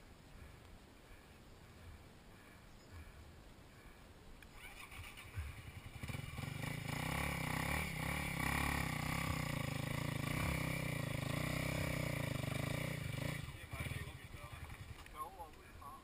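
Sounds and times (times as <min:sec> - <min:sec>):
engine running: 0:04.5 - 0:15.1.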